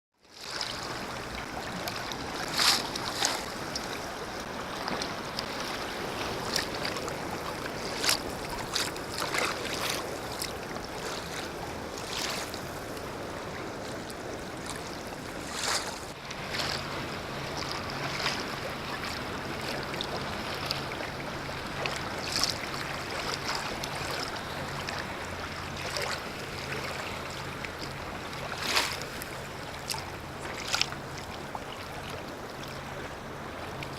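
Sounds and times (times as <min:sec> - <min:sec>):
wind: 0:00.1 - 0:33.9
paddle splashing in water: 0:00.2 - 0:33.9
water wash: 0:00.4 - 0:33.9.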